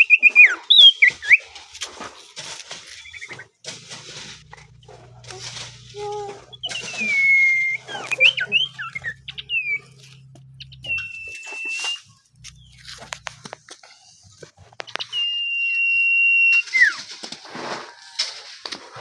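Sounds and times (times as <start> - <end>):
bird whistling: 0.0 - 1.5, 2.9 - 3.5, 6.0 - 12.9, 14.9 - 17.0
rustling: 0.0 - 19.0.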